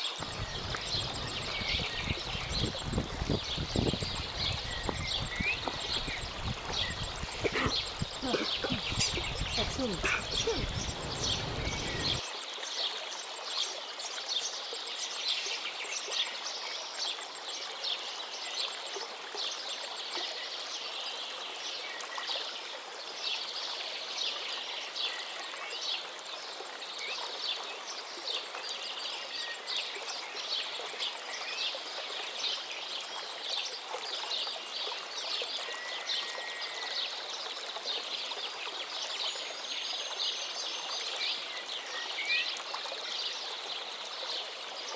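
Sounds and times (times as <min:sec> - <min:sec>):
songbirds chirping: 0:00.0 - 0:12.2.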